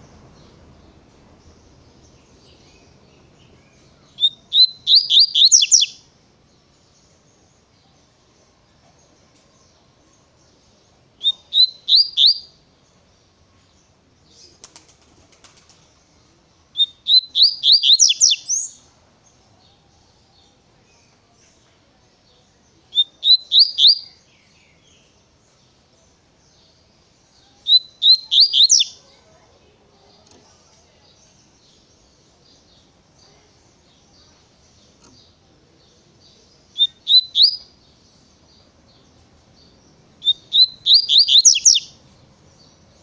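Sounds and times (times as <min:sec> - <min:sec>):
bird singing high rising notes: 0:00.0 - 0:06.1, 0:11.2 - 0:12.6, 0:16.8 - 0:18.8, 0:27.6 - 0:29.0, 0:36.7 - 0:37.8, 0:40.2 - 0:42.0.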